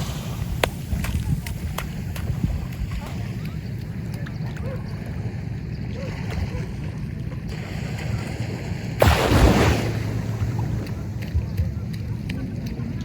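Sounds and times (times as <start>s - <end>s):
wind rumble on microphone: 0.0s - 13.0s
loud rush of noise: 9.0s - 11.2s.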